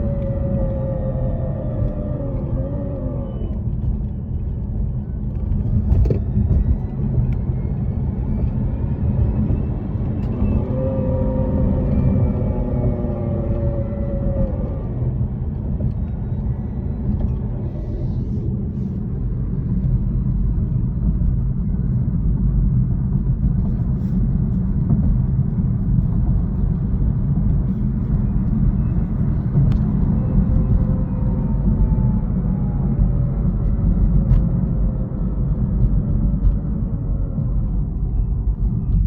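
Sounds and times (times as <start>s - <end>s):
falling grinding whine: 0.0s - 18.5s
car driving rumble: 0.0s - 39.0s.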